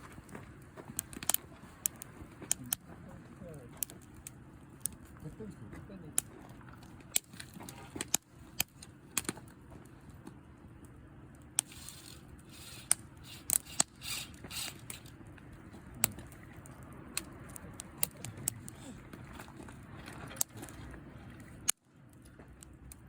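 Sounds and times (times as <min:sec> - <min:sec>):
campfire crackling: 0:00.0 - 0:23.0
sharp pops of fire: 0:06.1 - 0:09.4, 0:11.4 - 0:15.2.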